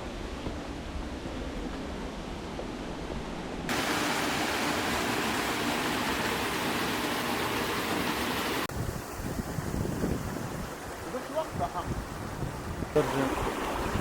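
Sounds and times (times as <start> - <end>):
falling water rushing: 3.7 - 14.0.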